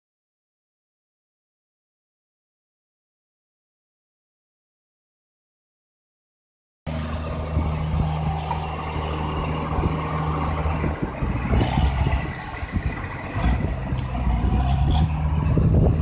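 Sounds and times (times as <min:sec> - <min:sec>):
tractor diesel engine running: 0:06.9 - 0:16.0.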